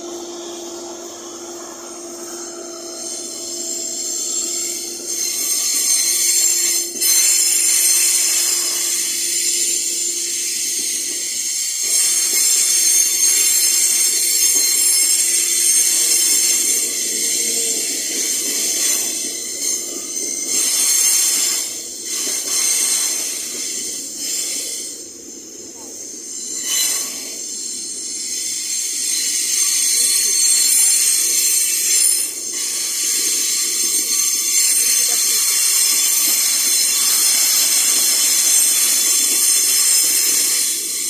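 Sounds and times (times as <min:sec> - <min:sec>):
low held tone: 0:00.0 - 0:07.6
train rolling stock whine: 0:00.0 - 0:41.0.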